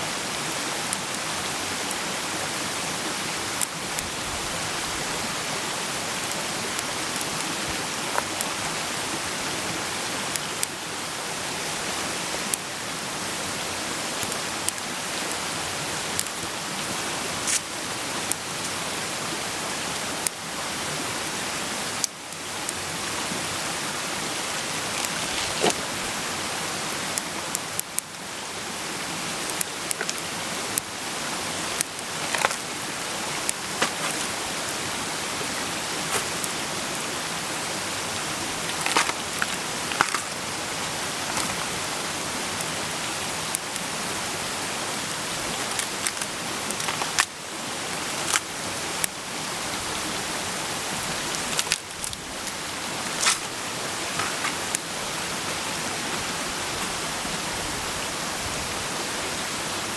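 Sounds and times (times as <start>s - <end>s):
wood fire crackling: 0.7s - 11.8s, 12.4s - 18.9s, 21.7s - 44.2s, 45.0s - 49.2s, 51.0s - 55.0s.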